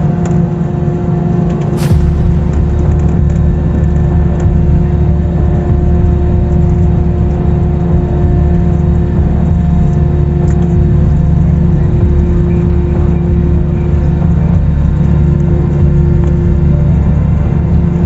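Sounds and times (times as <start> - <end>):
airliner cabin rumble: 0.0 - 18.0
constant hum: 0.0 - 18.0.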